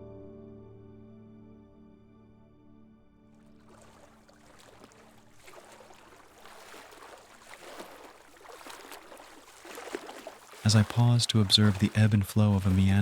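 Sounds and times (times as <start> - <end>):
stream water trickling: 3.4 - 13.0.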